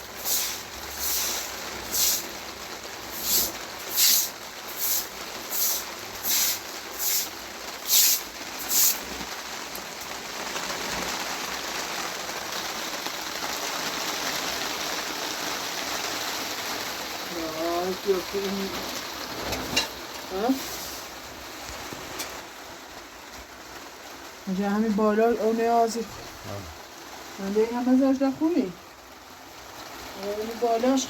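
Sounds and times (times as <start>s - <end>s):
heavy rain: 0.0s - 31.0s
short sharp hissing strokes: 0.2s - 2.3s, 3.2s - 9.0s.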